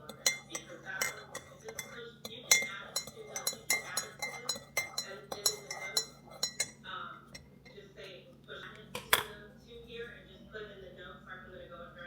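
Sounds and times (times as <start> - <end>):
dishes and cutlery clinking: 0.0 - 7.8.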